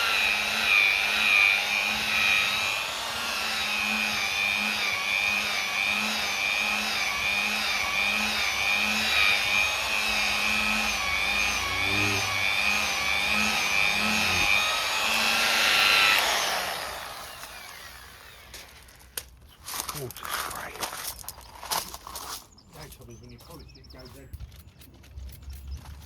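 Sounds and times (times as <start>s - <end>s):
electric polisher whining: 0.0s - 19.0s.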